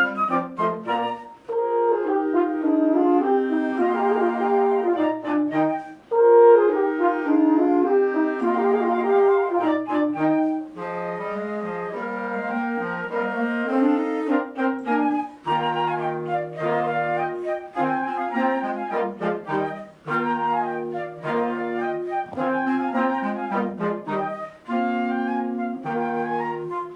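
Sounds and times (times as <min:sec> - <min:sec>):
wind band playing: 0:00.0 - 0:26.9.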